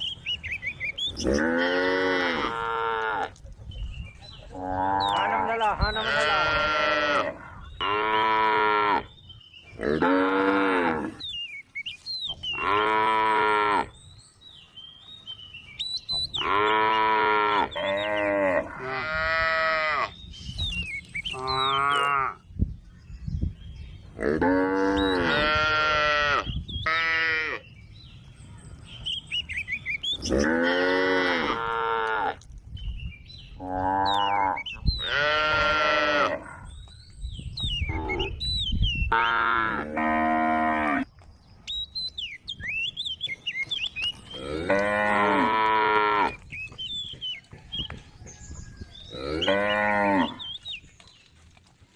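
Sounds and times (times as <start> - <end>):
cow mooing: 4.6 - 9.1, 24.2 - 27.6, 33.6 - 36.6, 44.4 - 46.4, 49.1 - 50.4.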